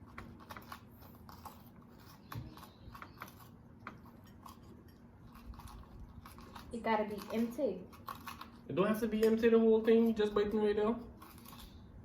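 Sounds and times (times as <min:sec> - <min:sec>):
utensils clicking and tapping: 0:01.4 - 0:11.7.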